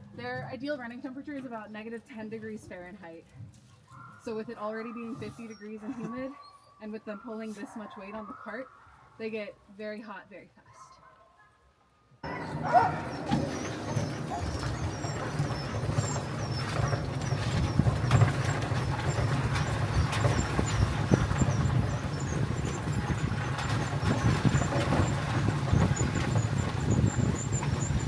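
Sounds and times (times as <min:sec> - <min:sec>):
cart rolling over dirt trail: 0:12.2 - 0:28.0
faint high squeaks: 0:12.2 - 0:28.0.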